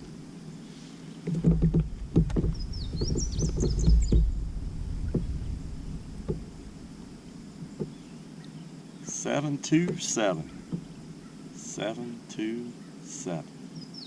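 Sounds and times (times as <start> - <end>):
knocks against kayak hull: 1.3 - 6.8, 7.6 - 8.0, 10.6 - 11.0.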